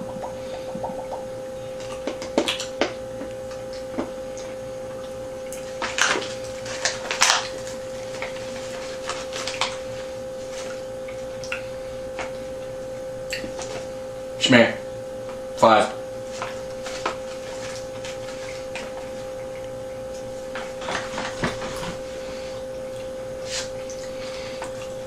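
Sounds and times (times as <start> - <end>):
electrical hum: 0.0 - 25.0
candy being chewed: 0.1 - 12.4.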